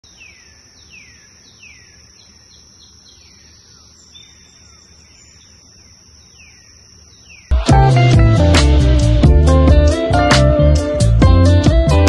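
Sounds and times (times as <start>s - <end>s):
birds chirping: 0.0s - 8.0s.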